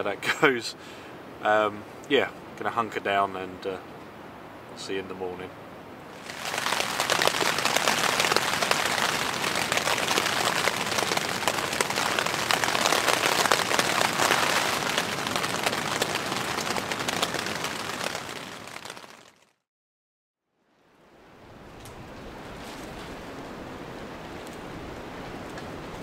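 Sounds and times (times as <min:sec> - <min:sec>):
rain pattering on tent fabric: 0:06.1 - 0:19.6, 0:24.1 - 0:26.0.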